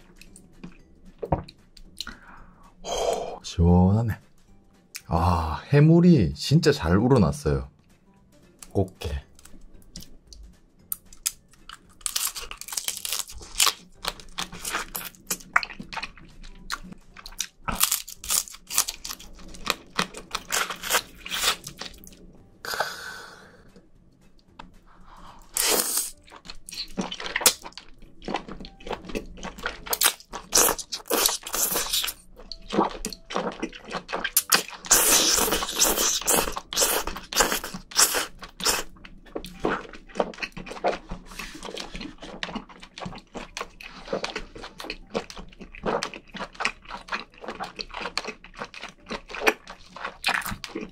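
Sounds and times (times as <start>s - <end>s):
crab shell crunching between teeth: 9.4s - 22.2s, 25.5s - 50.9s
wet chewing: 9.4s - 22.2s, 25.3s - 50.9s.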